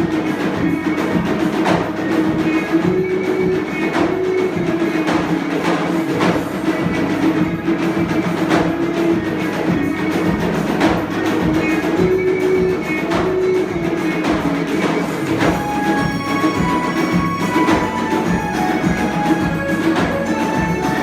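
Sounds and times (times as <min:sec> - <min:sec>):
dhol drums beating: 0:00.0 - 0:21.0
held melody line: 0:15.3 - 0:21.0.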